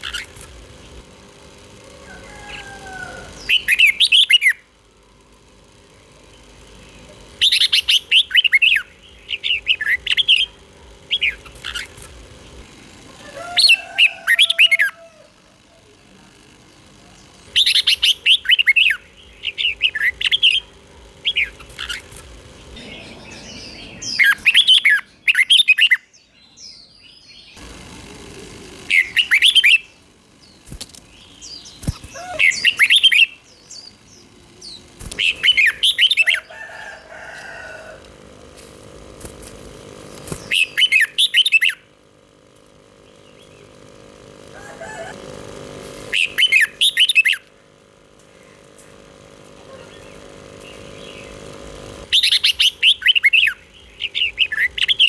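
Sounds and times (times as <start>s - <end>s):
faint steady hum: 0.0s - 55.0s
bird warbling whistled phrases: 31.5s - 33.4s.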